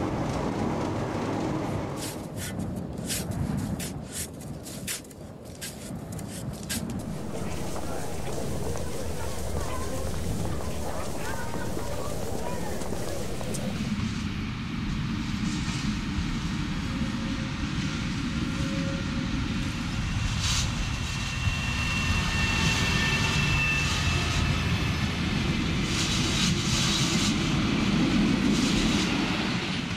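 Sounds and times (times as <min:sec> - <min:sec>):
train rumbling along track: 0:06.9 - 0:14.0
thin high whine: 0:07.0 - 0:13.9.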